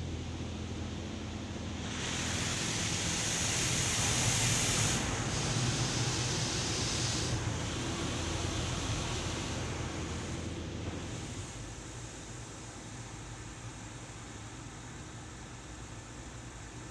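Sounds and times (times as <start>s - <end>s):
low hum of machinery: 0.0s - 16.9s
car wash water spraying: 1.7s - 12.2s.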